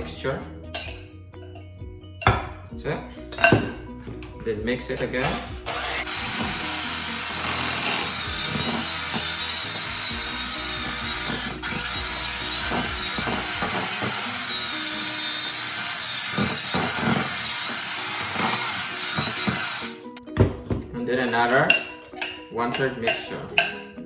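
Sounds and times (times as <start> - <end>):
electric hand mixer whining: 5.2 - 20.2.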